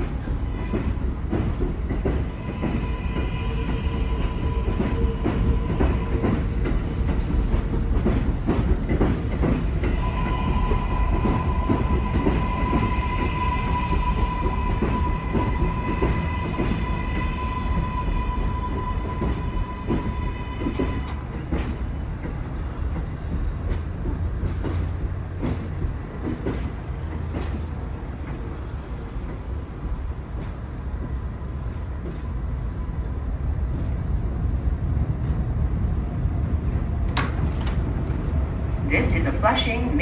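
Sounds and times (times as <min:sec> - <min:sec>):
subway train rumbling: 0:00.0 - 0:40.0
wheels clicking over rails: 0:37.0 - 0:38.4.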